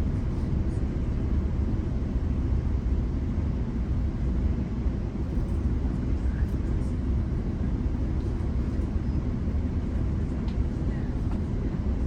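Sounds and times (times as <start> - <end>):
train wheels rumbling on track: 5.2 - 12.0.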